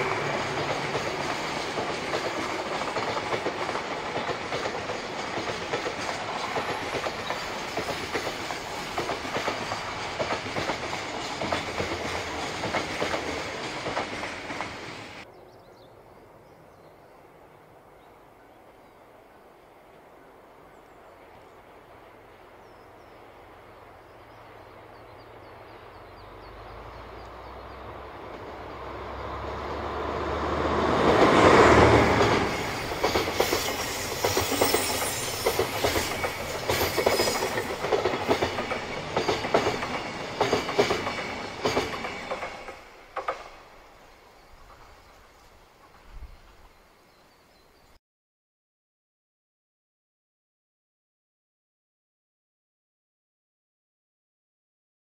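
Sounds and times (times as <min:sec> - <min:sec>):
diesel locomotive engine hum: 0:00.0 - 0:15.3, 0:16.0 - 0:45.0
wagons clattering over rail joints: 0:31.1 - 0:43.6.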